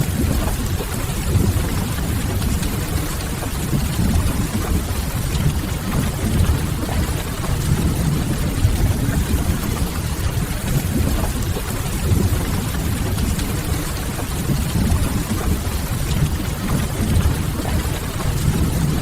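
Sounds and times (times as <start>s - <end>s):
rain hiss: 0.0s - 19.0s
heavy low rumble: 3.8s - 11.4s.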